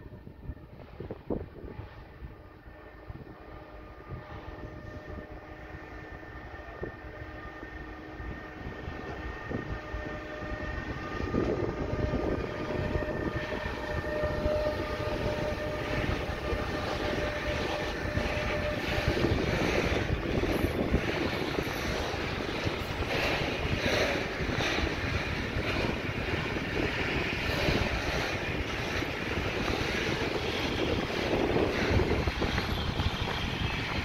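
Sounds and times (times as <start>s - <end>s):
electric locomotive whine: 0.0s - 34.0s
train wheels clattering on rails: 11.0s - 34.0s.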